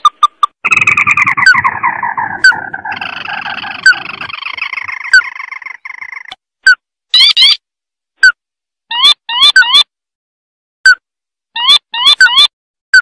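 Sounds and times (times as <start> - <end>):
crake rattling trills: 0.6 - 6.3
short rising bird notes: 0.6 - 6.3.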